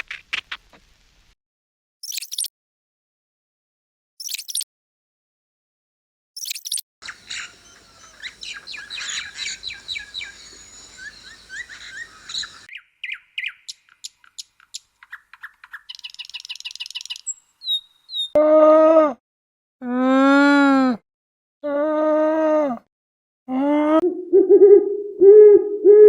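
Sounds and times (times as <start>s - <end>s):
birds chirping and trilling: 6.4s - 18.4s.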